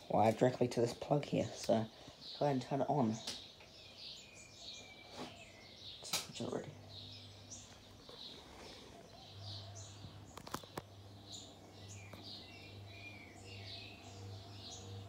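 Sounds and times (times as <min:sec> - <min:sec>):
birds chirping: 0:00.0 - 0:15.0
ceiling fan motor hum: 0:06.1 - 0:15.0.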